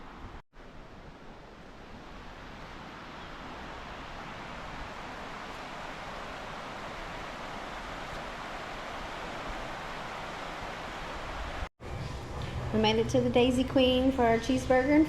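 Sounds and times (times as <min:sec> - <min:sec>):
floodwater rushing: 0:00.0 - 0:11.7.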